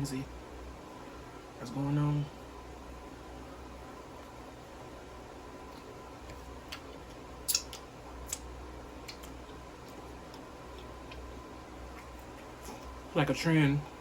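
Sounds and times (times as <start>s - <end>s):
mouth clicks and smacks: 6.7s - 11.3s.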